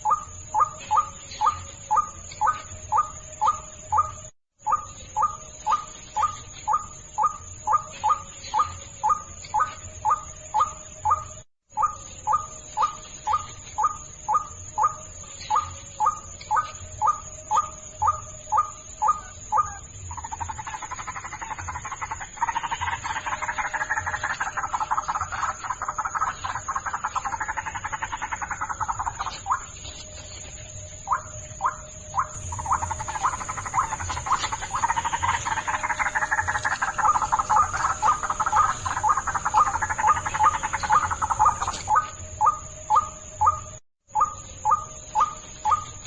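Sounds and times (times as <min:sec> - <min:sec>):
fast croaking chatter: 0:20.1 - 0:29.6, 0:32.2 - 0:42.0
bird squawking call: 0:31.1 - 0:43.6.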